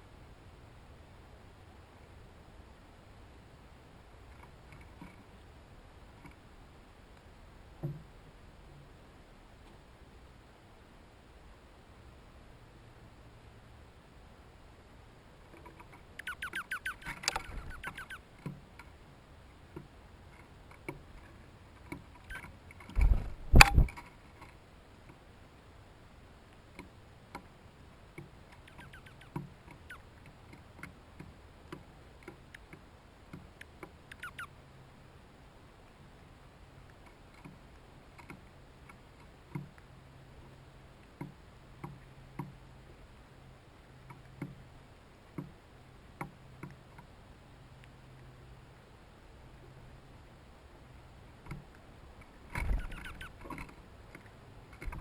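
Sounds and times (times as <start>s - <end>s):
small scattered ticks and taps: 4.3s - 5.3s, 6.2s - 6.4s, 7.1s - 8.1s, 15.4s - 19.0s, 19.7s - 25.2s, 26.5s - 27.5s, 28.1s - 34.4s, 36.8s - 43.0s, 43.8s - 44.7s, 45.3s - 45.6s, 46.2s - 48.3s, 51.4s - 55.0s
rapid chattering bird call: 16.2s - 18.3s, 28.5s - 30.2s, 34.1s - 34.5s, 52.6s - 53.6s.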